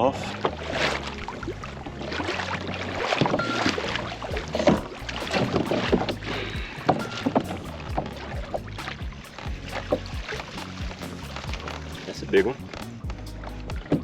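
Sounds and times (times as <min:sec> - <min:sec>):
water sloshing: 0:00.0 - 0:14.0
steady low hum: 0:04.0 - 0:14.0.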